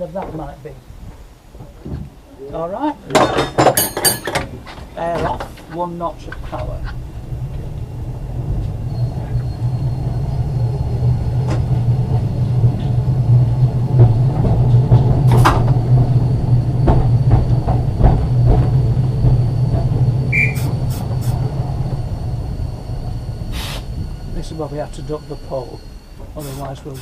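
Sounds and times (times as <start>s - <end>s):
wheel-on-rail rumble: 0.0s - 27.0s
tram motor hum: 3.9s - 27.0s
faint high whine: 5.3s - 12.4s, 15.4s - 27.0s
running gear knocks and clicks: 13.9s - 21.2s.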